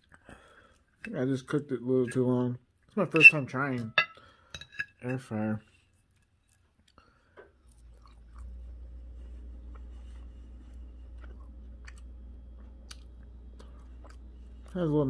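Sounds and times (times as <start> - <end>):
person chewing: 6.1 - 14.9
low steady hum: 7.6 - 15.0.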